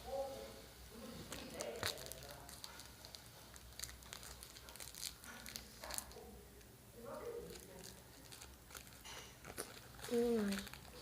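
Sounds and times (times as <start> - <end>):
plastic wrappers crinkling: 1.2 - 6.2, 7.4 - 11.0.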